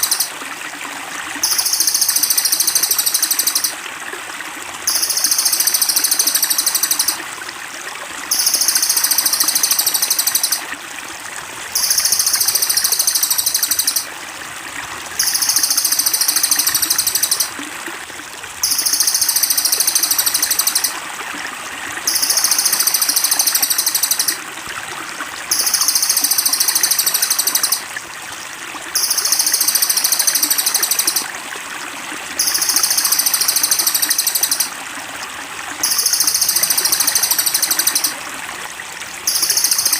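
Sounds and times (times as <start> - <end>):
buzzy bird trill: 0.0 - 0.3, 1.4 - 3.7, 4.9 - 7.2, 8.3 - 10.6, 11.8 - 14.1, 15.2 - 17.5, 18.6 - 21.0, 22.1 - 24.4, 25.5 - 27.8, 29.0 - 31.3, 32.4 - 34.7, 35.8 - 38.2, 39.3 - 39.9
water trickling: 0.0 - 39.9.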